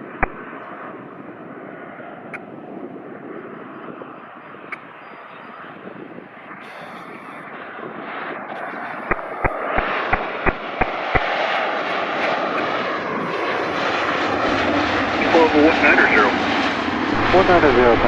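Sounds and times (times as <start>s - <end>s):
jet engines running: 0.0s - 18.0s
sharp clicks: 0.2s - 0.6s, 9.1s - 12.8s.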